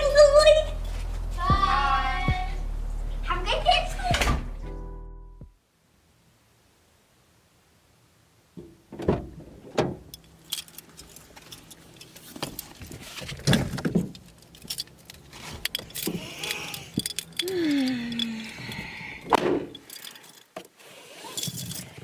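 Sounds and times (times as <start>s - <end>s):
keys jangling: 10.2s - 12.2s, 14.4s - 18.8s, 19.7s - 20.5s.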